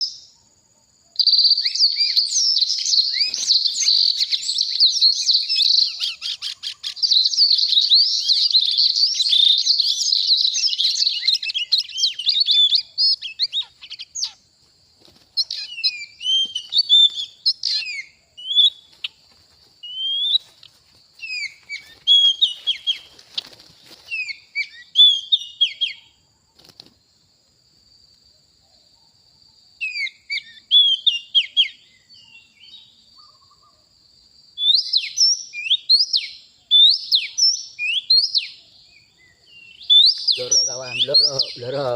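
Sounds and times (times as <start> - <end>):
bird singing whistles and chatter: 1.2 - 14.4, 15.4 - 18.8, 21.2 - 26.0, 34.6 - 38.6, 39.2 - 41.9.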